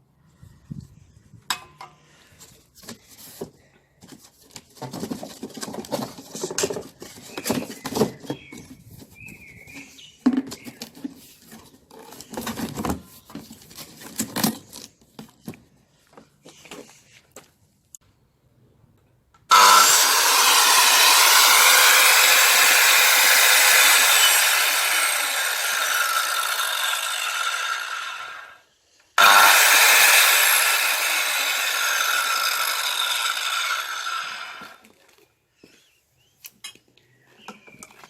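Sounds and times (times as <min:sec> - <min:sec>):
circular saw cutting wood: 0:19.5 - 0:28.6, 0:29.2 - 0:34.8.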